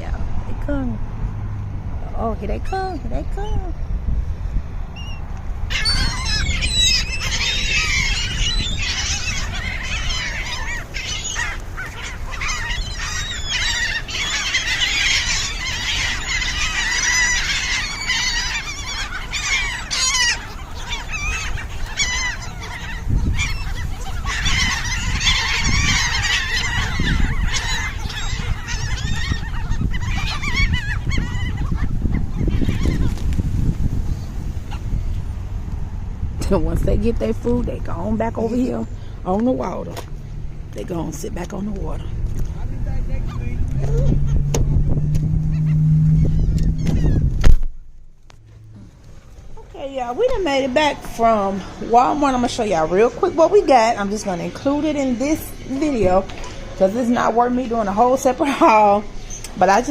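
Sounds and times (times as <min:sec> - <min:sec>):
geese honking: 0:05.7 - 0:33.2, 0:43.2 - 0:47.3, 0:48.2 - 0:59.9.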